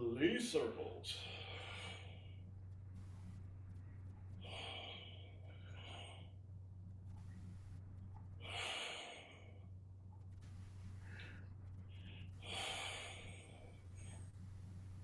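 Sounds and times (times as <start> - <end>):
low electrical hum: 0.0 - 15.0
person breathing out: 12.2 - 14.2.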